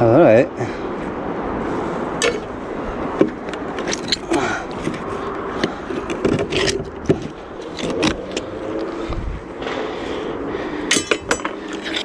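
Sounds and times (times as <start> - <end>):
metal scraping and clicking: 3.2 - 8.9, 10.9 - 12.0.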